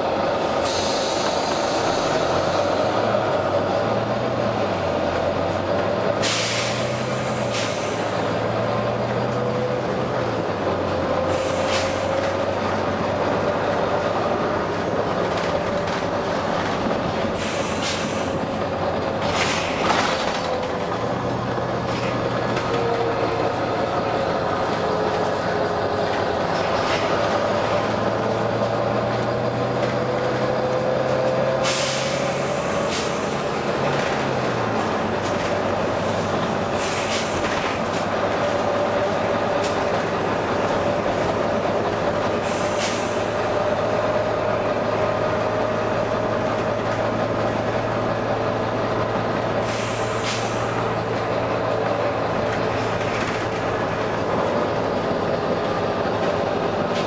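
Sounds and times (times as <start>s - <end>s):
bus engine hum and whine: 0.0s - 57.0s
air brake hisses: 0.6s - 2.9s, 6.2s - 8.2s, 11.3s - 12.2s, 17.4s - 18.4s, 31.6s - 33.4s, 36.8s - 37.4s, 42.4s - 43.3s, 49.6s - 50.8s.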